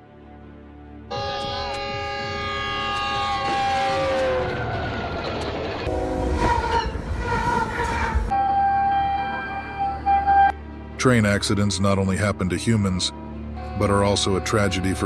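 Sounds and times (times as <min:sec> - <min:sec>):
train rumbling by: 0:03.6 - 0:08.4
train air horn chord: 0:05.9 - 0:07.4.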